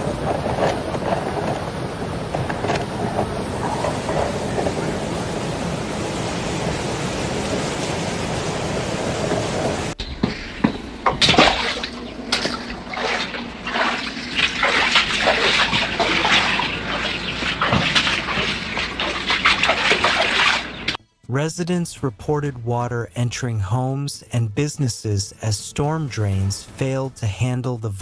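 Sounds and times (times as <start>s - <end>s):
rushing floodwater: 0.0s - 10.0s, 11.1s - 21.0s
water splashing and sloshing: 0.0s - 21.0s.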